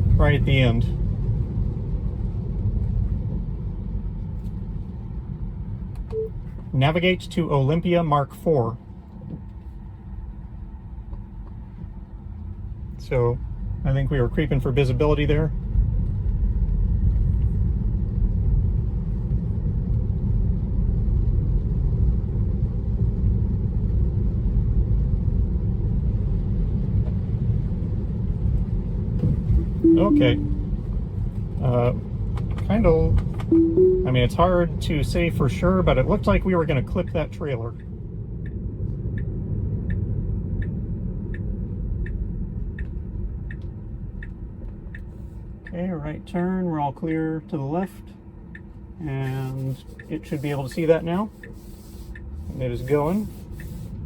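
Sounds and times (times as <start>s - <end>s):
road and tyre rumble in car: 0.0s - 29.8s, 30.4s - 54.0s
turn signal ticking: 37.8s - 45.8s, 48.5s - 48.8s, 49.8s - 53.8s.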